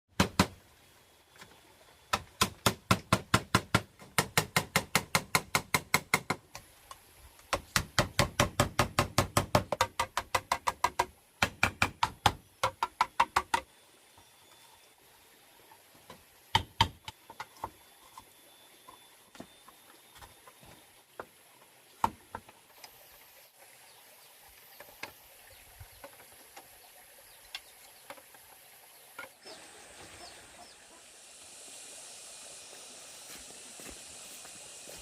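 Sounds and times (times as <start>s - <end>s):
tool knocking on bamboo: 0.2s - 0.6s, 2.1s - 6.6s, 7.5s - 13.7s, 16.5s - 17.8s.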